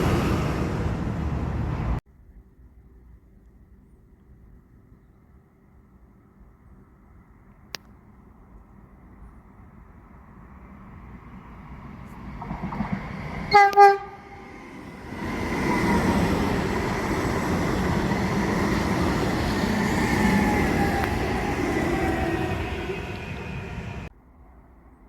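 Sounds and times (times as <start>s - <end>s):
train wheels rolling on rails: 0.0s - 2.0s, 11.2s - 24.1s
train horn blasts: 13.5s - 14.7s.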